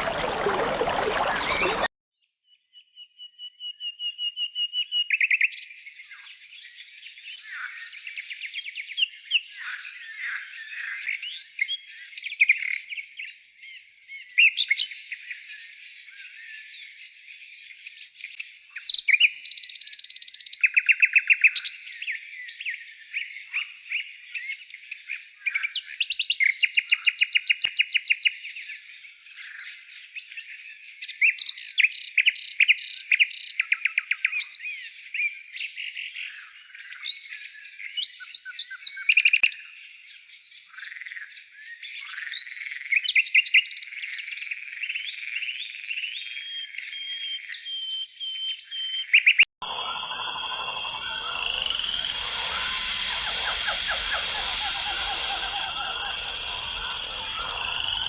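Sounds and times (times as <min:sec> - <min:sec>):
songbirds singing: 0:50.4 - 0:58.0.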